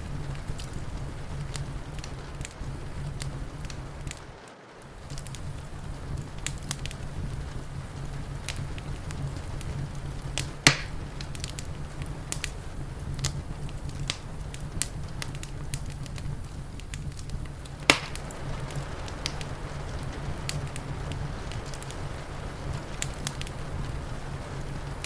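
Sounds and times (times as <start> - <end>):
low rumble: 0.0 - 25.0
wood fire crackling: 0.0 - 25.0
loud sharp snaps: 10.4 - 12.6, 16.8 - 19.5.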